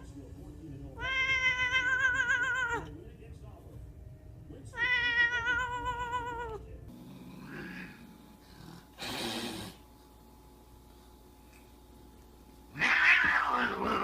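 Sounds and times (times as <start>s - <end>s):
cat meowing: 1.0s - 2.9s, 4.8s - 6.6s, 12.8s - 14.0s.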